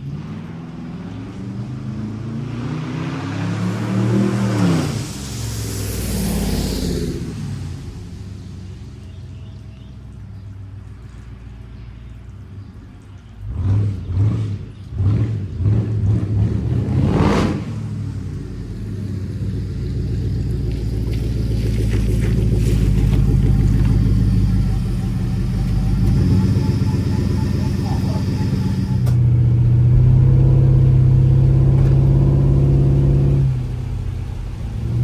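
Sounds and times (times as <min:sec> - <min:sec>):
car engine revving: 0:00.0 - 0:09.6, 0:13.4 - 0:35.0
rush of noise: 0:02.9 - 0:08.6, 0:17.0 - 0:35.0.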